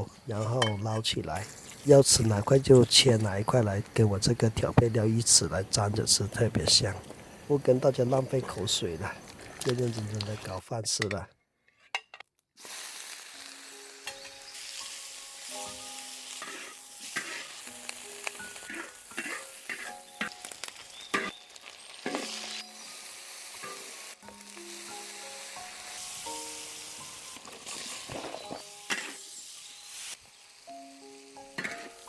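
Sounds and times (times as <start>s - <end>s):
food sizzling in a wok: 1.4s - 3.1s, 12.6s - 32.0s
light background music: 1.8s - 6.9s, 13.2s - 32.0s
metal spatula scraping pan: 16.3s - 17.6s, 18.5s - 20.4s.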